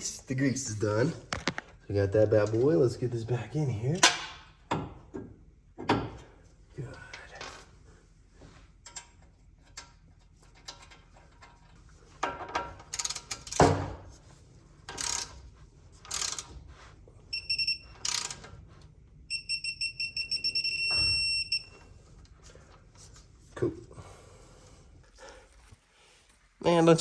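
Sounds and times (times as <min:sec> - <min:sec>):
torque wrench beeping: 0:17.3 - 0:18.4, 0:19.3 - 0:21.8.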